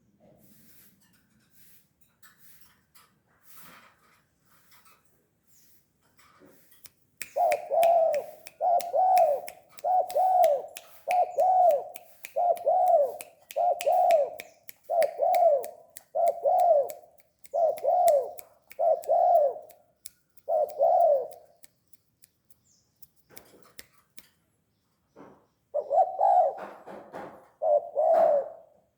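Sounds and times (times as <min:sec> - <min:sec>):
dove cooing: 0:07.3 - 0:19.7, 0:20.4 - 0:21.5, 0:25.8 - 0:28.8.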